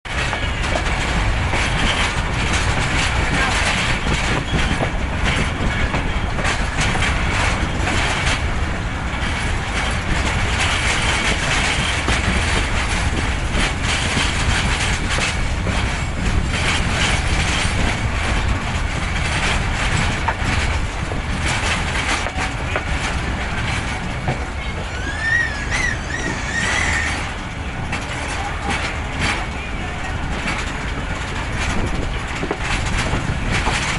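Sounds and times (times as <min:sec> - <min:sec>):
train wheels clattering on rails: 0:00.1 - 0:33.9
wavering high squeal: 0:24.8 - 0:27.3.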